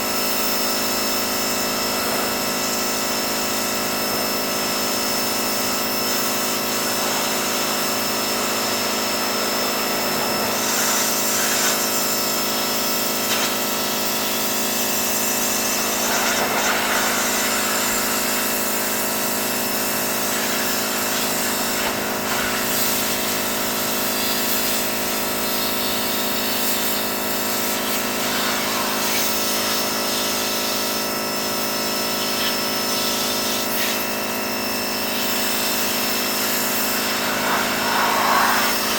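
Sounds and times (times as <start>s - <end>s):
pressure washer hum: 0.0s - 38.9s
hiss of water spray: 9.8s - 30.8s, 32.2s - 34.2s, 35.0s - 38.9s.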